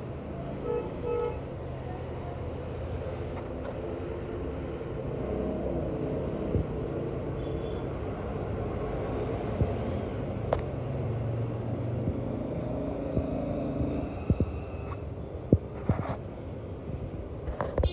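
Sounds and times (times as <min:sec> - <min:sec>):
road traffic rumble: 0:00.0 - 0:17.9
vehicle horn toots: 0:00.6 - 0:01.4.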